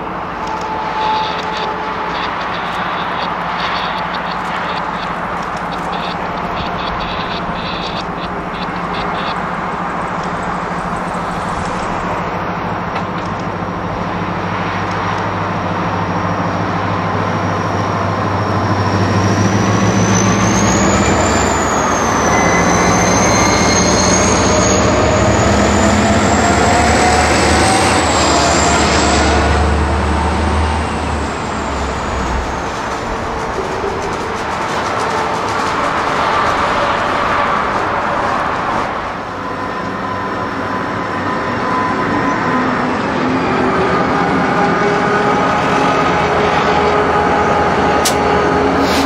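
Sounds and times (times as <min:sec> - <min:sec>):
thin high whine: 0:00.0 - 0:13.4, 0:48.0 - 0:49.0
train passing: 0:00.0 - 0:49.0.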